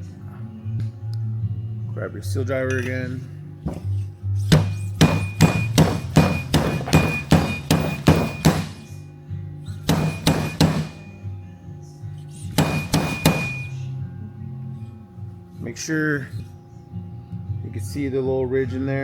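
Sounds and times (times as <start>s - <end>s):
metal-on-metal hammer strikes: 3.7s - 9.0s, 9.7s - 11.2s, 12.4s - 13.9s.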